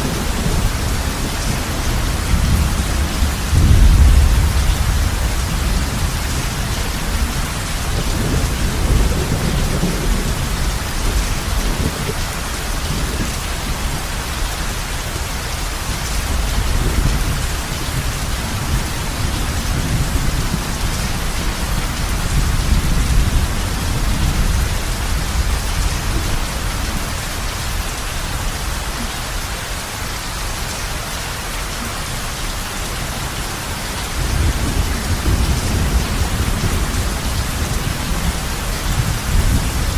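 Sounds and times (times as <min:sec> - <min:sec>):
rolling thunder rumbles: 0:00.0 - 0:29.0, 0:32.9 - 0:39.9
heavy rain on a roof: 0:00.0 - 0:39.9.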